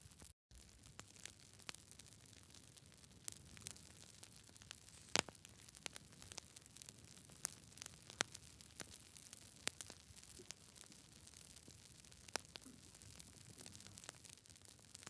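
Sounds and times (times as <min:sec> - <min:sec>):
campfire crackling and popping: 0:00.1 - 0:15.0
faint steady hiss: 0:03.0 - 0:08.5.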